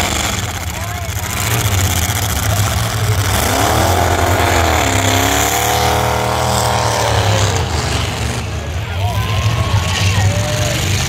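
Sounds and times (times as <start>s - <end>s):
car engines droning: 0.0s - 11.0s
engine revving under load: 0.0s - 11.0s.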